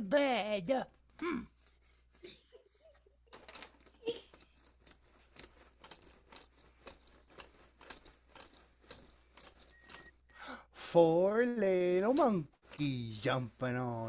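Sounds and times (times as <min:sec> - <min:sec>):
faint rustling and crinkling: 0:00.7 - 0:10.3, 0:11.5 - 0:14.0.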